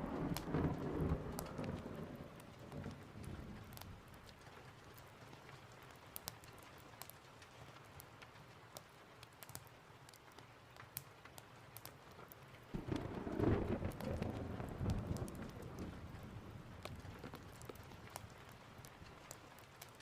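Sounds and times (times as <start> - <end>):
thunder rumbling: 0.0 - 4.2, 12.7 - 18.6
steady rain: 0.0 - 20.0.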